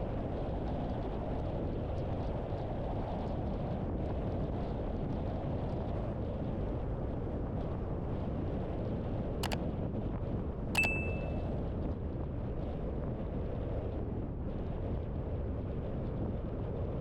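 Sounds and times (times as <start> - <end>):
sharp clicks: 10.8 - 11.4
brief high ring: 10.8 - 11.5.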